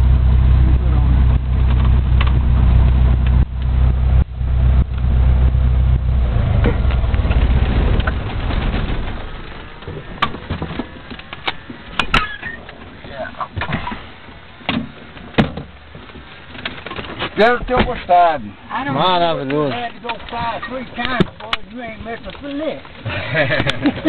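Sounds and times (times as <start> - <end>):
small airplane engine idling: 0.0 - 13.0
sharp clicks and knocks: 6.6 - 12.9, 19.4 - 23.0.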